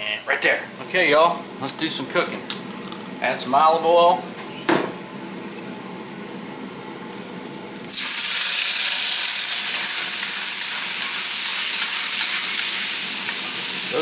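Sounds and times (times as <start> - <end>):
chicken sizzling in oil: 7.9 - 14.0.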